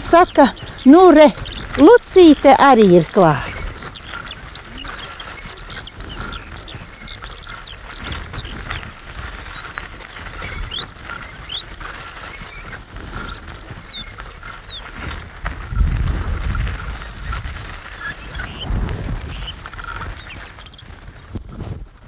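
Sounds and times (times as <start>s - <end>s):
birds chirping and whistling: 0.0s - 15.8s, 16.5s - 21.5s
low rumble: 18.3s - 19.8s.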